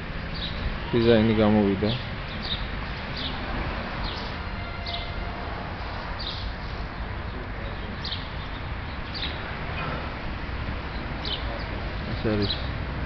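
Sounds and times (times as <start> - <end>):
small bird chirping: 2.3 - 3.4, 7.7 - 9.5, 10.9 - 12.7.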